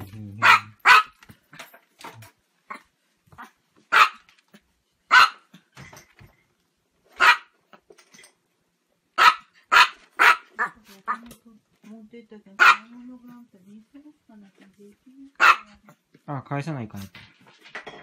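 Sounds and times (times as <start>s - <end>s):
small dog barking: 0.4s - 1.2s, 3.4s - 4.3s, 5.1s - 5.5s, 7.2s - 7.6s, 9.2s - 11.2s, 12.6s - 12.9s, 15.4s - 16.0s.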